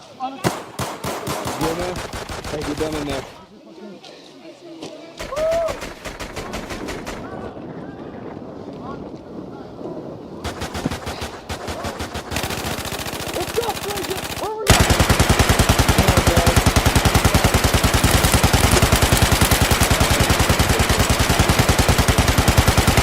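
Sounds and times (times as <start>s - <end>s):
machine-gun fire: 0.4s - 3.4s, 5.2s - 7.5s, 10.4s - 23.0s.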